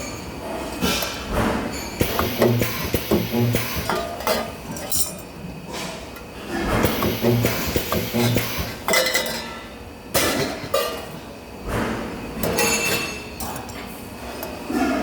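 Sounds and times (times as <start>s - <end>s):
spot welder buzz: 2.0s - 4.0s, 6.8s - 8.9s.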